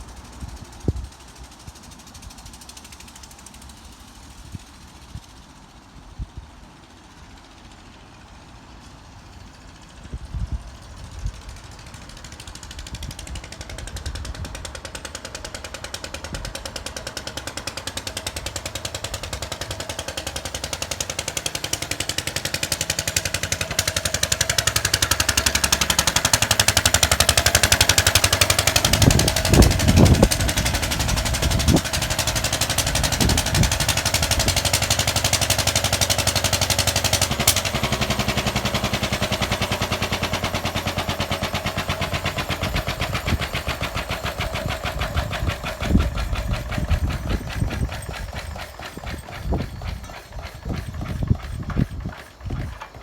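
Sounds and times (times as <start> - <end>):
stationary engine running: 11.8 - 53.0.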